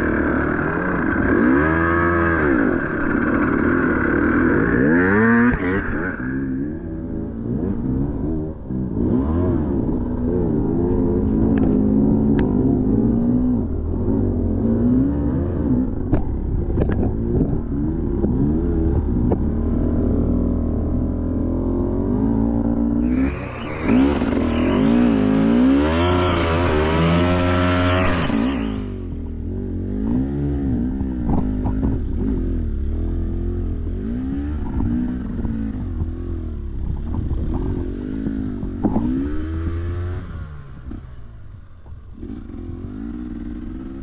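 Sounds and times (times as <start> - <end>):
dirt bike engine revving: 0.0 - 41.1, 42.1 - 44.0.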